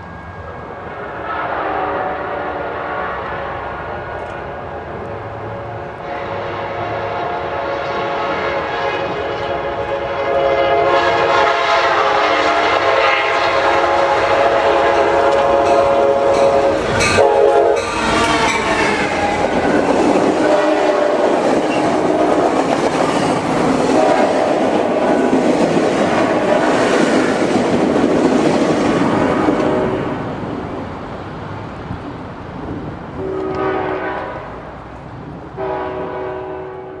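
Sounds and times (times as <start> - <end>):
train horn blowing: 0.6 - 22.7, 23.8 - 25.4, 29.2 - 30.2, 33.2 - 34.6, 35.6 - 37.0.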